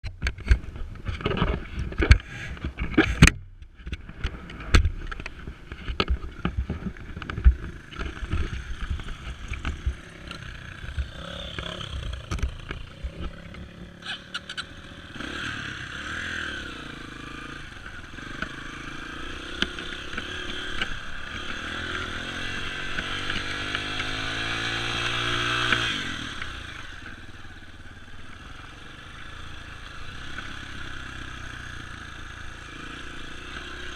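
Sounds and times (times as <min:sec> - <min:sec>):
dirt bike engine revving: 0:07.6 - 0:33.9.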